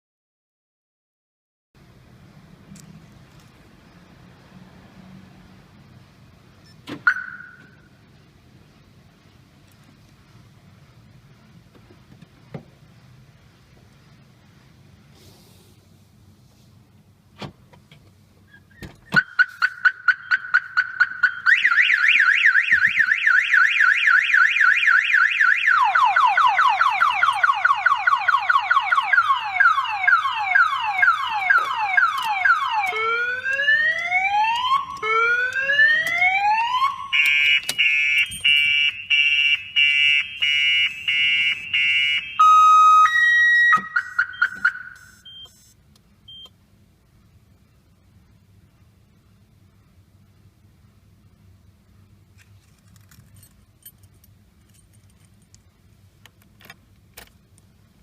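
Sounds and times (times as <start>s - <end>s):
car alarm siren: 7.0s - 7.9s, 19.2s - 45.7s.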